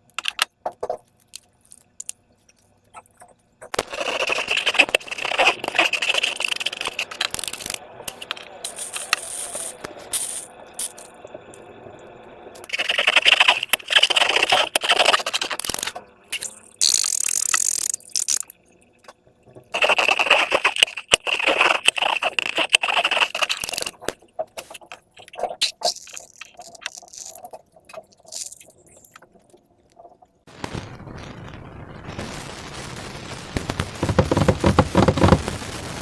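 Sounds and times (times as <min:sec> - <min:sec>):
slime balloons crackling and squeaking: 0:02.8 - 0:11.2, 0:12.6 - 0:18.6, 0:19.6 - 0:30.3, 0:33.5 - 0:36.0.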